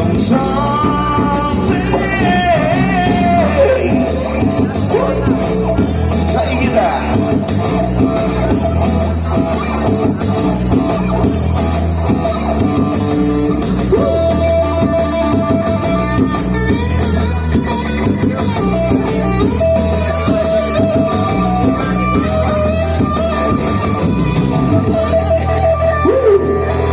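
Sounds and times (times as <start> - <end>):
guitar-led rock music: 0.0 - 26.9.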